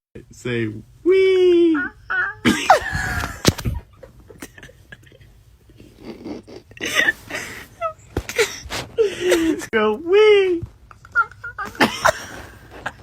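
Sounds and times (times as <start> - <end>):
rustling of bedding: 6.8 - 10.9.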